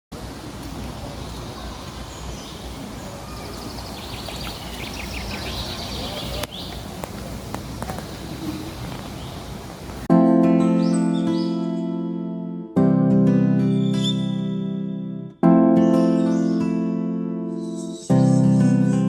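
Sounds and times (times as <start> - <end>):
birds chirping: 0.4 - 10.1.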